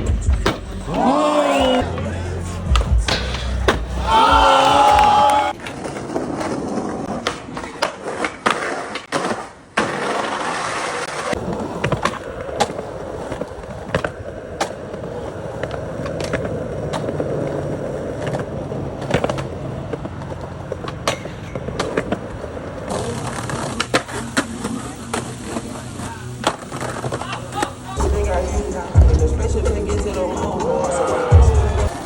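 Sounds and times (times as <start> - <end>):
skateboard clacks: 0.0 - 27.9
skateboard wheels rumbling: 0.0 - 32.0.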